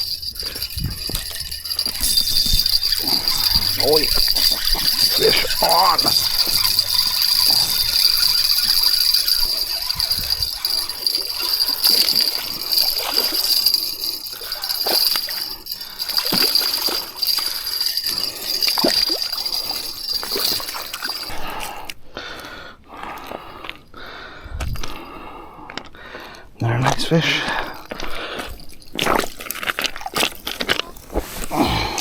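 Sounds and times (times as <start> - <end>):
rattles and clicks: 0.0 - 21.3.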